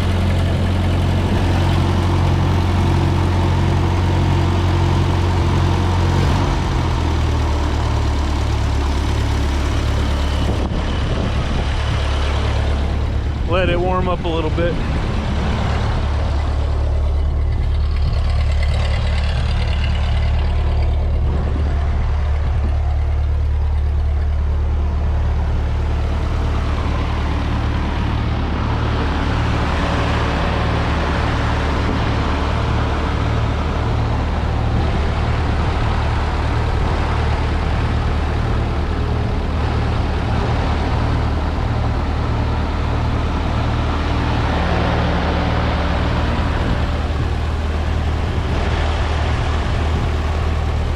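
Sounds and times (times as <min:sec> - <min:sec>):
tractor engine idling: 0:00.0 - 0:50.9.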